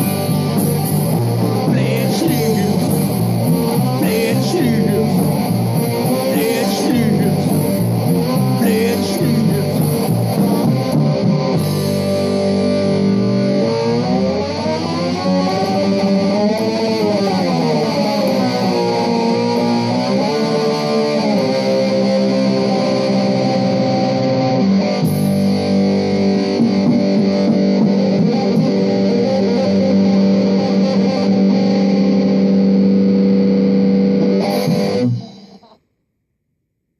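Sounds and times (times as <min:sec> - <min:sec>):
bass guitar: 0:00.0 - 0:35.8
distorted electric guitars: 0:00.0 - 0:35.9.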